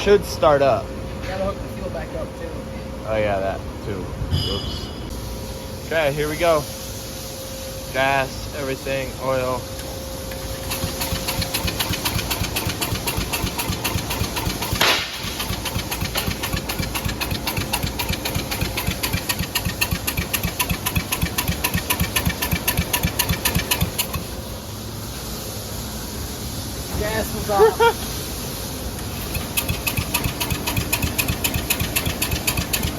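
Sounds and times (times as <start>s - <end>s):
engine cranking by starter: 10.3s - 24.4s, 28.9s - 32.9s.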